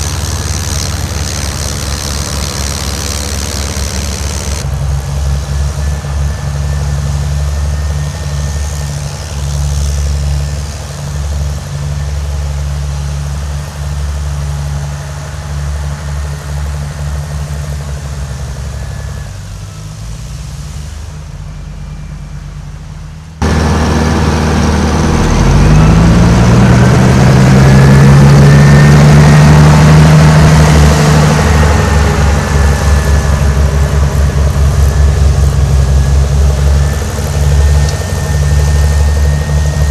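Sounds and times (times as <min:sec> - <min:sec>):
snowblower engine running: 0:00.0 - 0:39.9.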